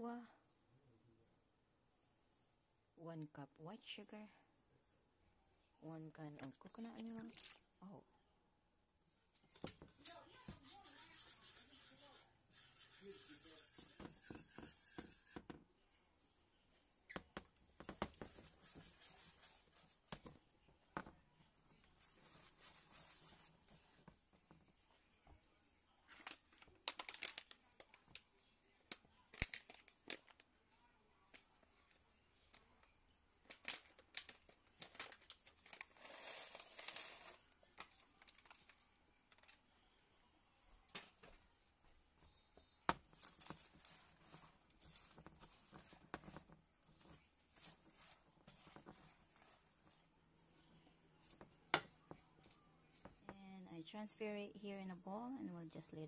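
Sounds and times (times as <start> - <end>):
faint rustling and scraping: 9.0 - 53.4.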